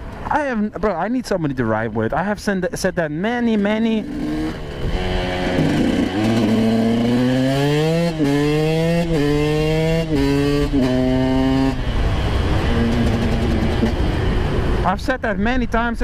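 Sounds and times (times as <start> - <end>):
dirt bike engine accelerating: 3.6 - 14.9.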